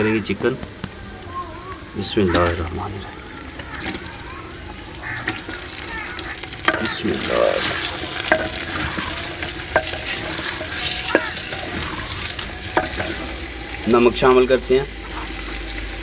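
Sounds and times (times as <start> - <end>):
chicken sizzling in hot fat: 0.0 - 16.0
wooden spoon knocking against pot: 6.6 - 13.3.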